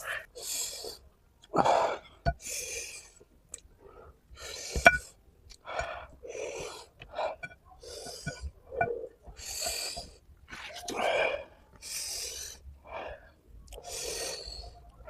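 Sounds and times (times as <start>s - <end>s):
person gasping hissing breaths: 10.8s - 14.8s.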